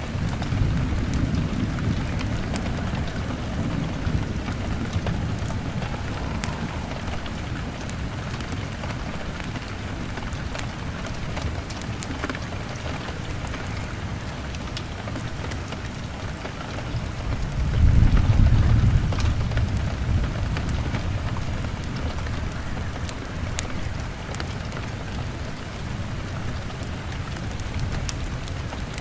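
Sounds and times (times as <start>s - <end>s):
low rumble: 0.0s - 10.1s
rain hammering on a window: 0.0s - 29.0s.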